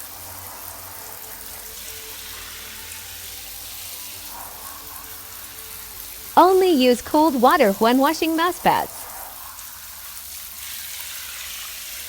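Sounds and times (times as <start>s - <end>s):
water running from a tap: 10.0s - 12.0s.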